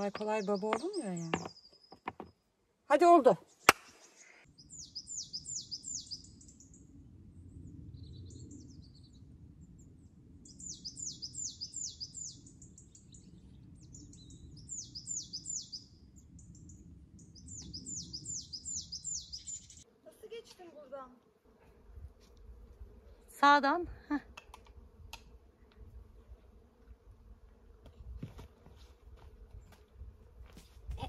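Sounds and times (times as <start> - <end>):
soft bird chirps: 3.4 - 6.9, 9.8 - 19.8.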